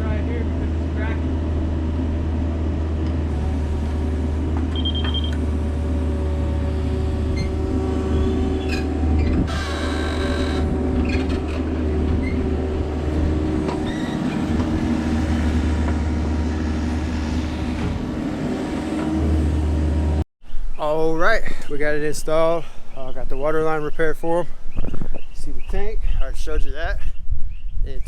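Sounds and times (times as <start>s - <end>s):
diesel engine running: 0.0s - 20.2s.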